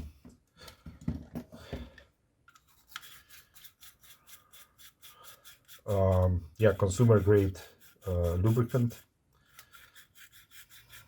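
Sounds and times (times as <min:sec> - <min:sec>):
scratchy scrubbing on machine parts: 0:02.6 - 0:11.0.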